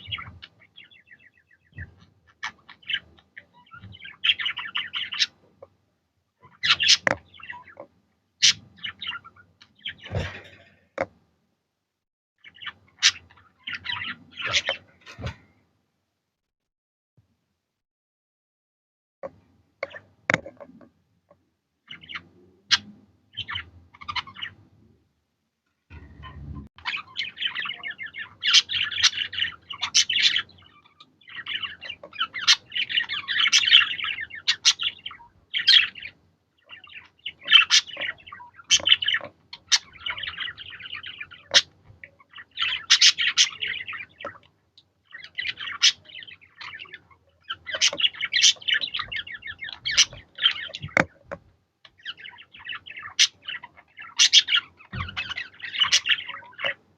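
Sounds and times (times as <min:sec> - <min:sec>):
budgerigars chattering: 0:01.7 - 0:05.4, 0:06.5 - 0:07.8, 0:08.4 - 0:10.6, 0:26.8 - 0:44.4, 0:45.1 - 0:51.1, 0:52.0 - 0:56.8.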